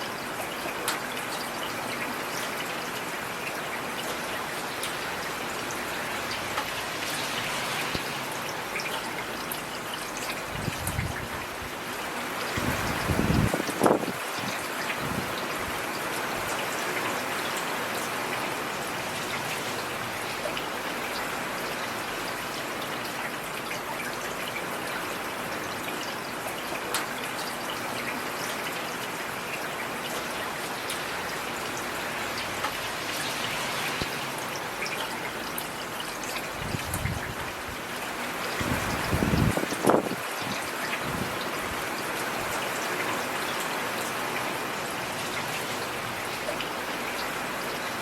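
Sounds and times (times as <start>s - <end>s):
heavy rain hissing: 31.0s - 35.6s.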